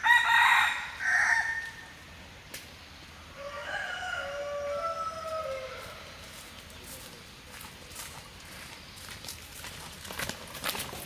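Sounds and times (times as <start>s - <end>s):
rooster crowing: 0.0s - 1.9s, 3.4s - 6.2s.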